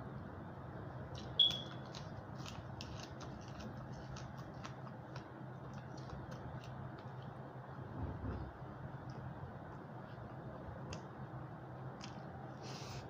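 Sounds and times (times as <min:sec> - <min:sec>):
chewing crunches and mouth clicks: 0:01.1 - 0:07.6, 0:11.8 - 0:12.5.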